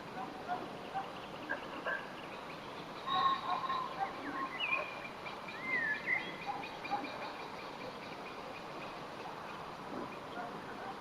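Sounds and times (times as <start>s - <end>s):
birds chirping and whistling: 1.0s - 7.3s.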